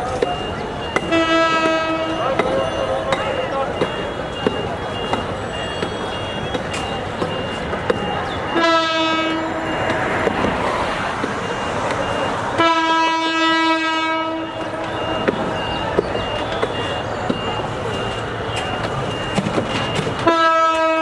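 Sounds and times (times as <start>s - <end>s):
high repeating beep: 0.0s - 12.6s, 14.4s - 20.3s
street and rail noise: 0.0s - 21.0s
locomotive horn: 0.8s - 11.0s, 12.2s - 21.0s.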